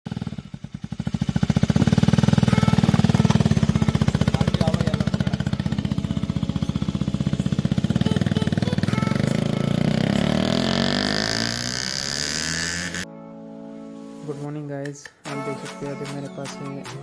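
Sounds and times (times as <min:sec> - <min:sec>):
motorcycle engine idling: 0:00.1 - 0:11.8.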